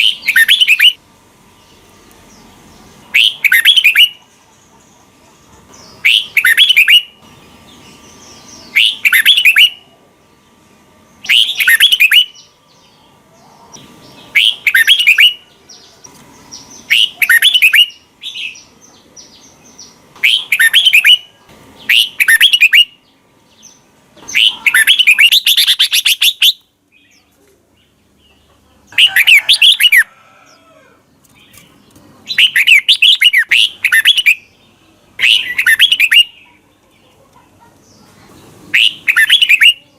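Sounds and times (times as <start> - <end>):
bird singing bubbly warbled phrases: 0.0 - 1.0, 3.1 - 4.2, 6.0 - 7.2, 8.4 - 9.9, 11.2 - 12.6, 13.4 - 15.5, 16.5 - 19.6, 20.2 - 28.2, 32.2 - 39.9.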